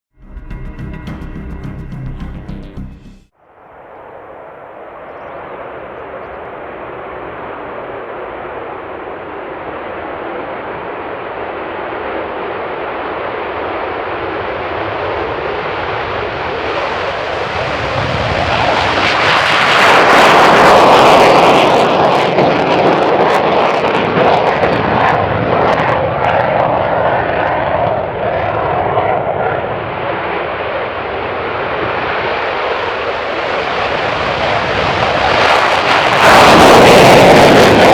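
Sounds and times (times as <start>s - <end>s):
jet engine roar: 3.5s - 37.9s.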